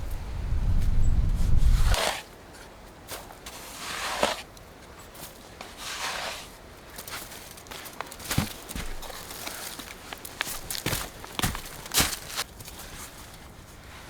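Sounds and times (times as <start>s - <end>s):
low rumble: 0.0s - 2.0s
slow footsteps: 7.0s - 14.0s.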